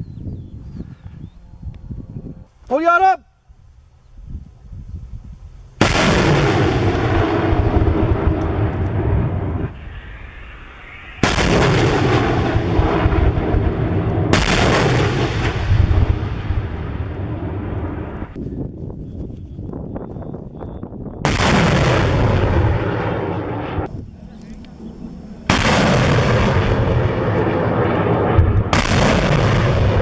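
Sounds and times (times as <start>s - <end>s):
rocket launch blast: 5.8s - 18.4s, 21.2s - 23.9s, 25.4s - 30.0s.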